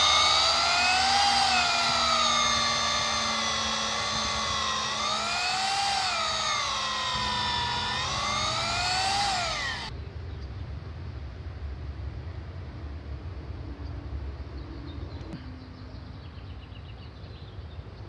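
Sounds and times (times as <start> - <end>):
electric drill whining: 0.0 - 9.9.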